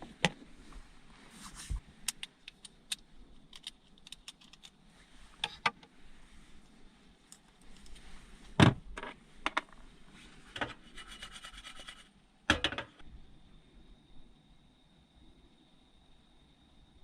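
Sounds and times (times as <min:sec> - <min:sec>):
objects knocking and clacking: 0:12.5 - 0:13.0.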